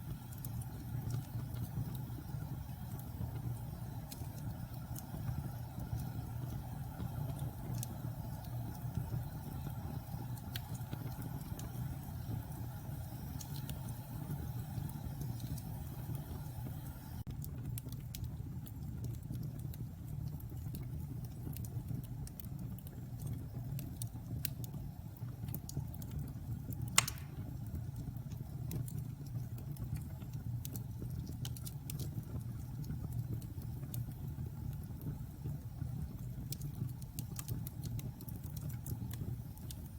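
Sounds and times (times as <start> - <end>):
fire crackles: 0.0 - 39.9
fire low rumble: 0.0 - 39.9
sharp fire pop: 27.0 - 27.6.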